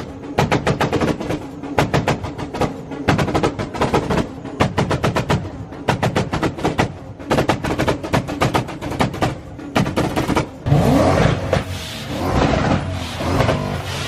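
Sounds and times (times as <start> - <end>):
car engine revving: 10.6 - 14.0.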